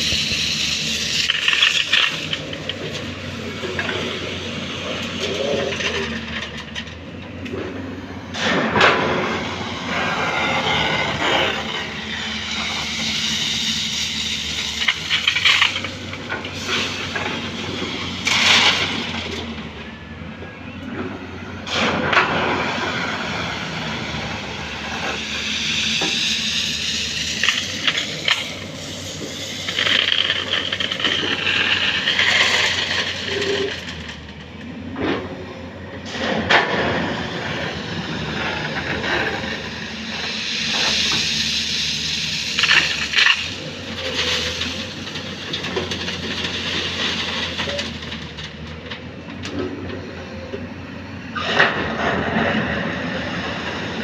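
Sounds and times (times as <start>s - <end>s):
excavator running under load: 0.0s - 54.0s.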